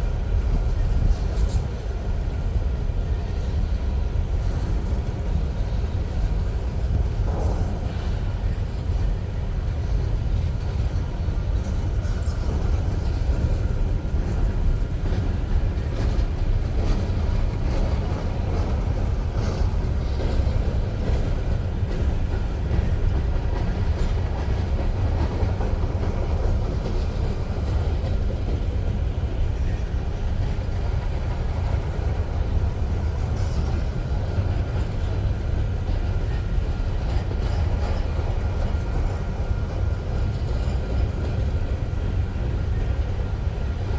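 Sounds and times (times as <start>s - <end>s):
freight train cars rumbling: 0.0s - 43.9s.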